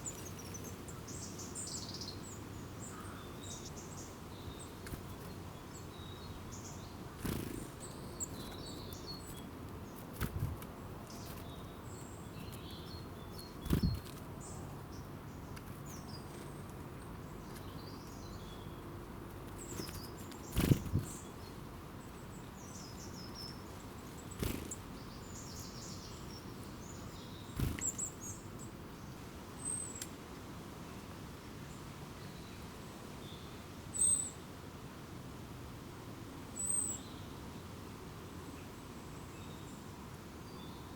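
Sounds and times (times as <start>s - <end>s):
birds chirping: 0.0s - 18.9s, 19.6s - 30.1s
steady background hiss: 0.0s - 40.9s.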